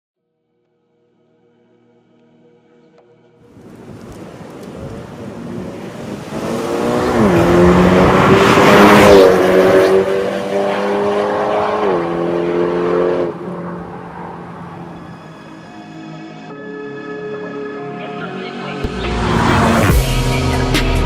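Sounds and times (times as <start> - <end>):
car exhaust accelerating: 3.5 - 15.1.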